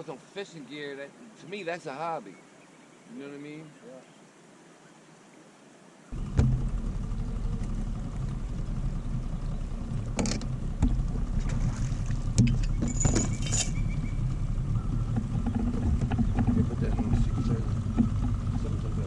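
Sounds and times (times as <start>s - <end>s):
boat motor humming: 6.1s - 19.0s
sharp knocks and clicks: 10.1s - 11.2s, 12.3s - 13.8s, 14.9s - 18.7s.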